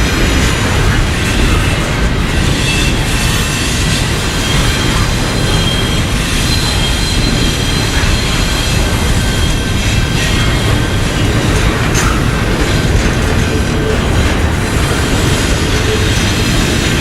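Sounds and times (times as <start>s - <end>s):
freight train wheels rumbling: 0.0s - 17.0s
high-pitched wheel squeal: 2.4s - 11.3s.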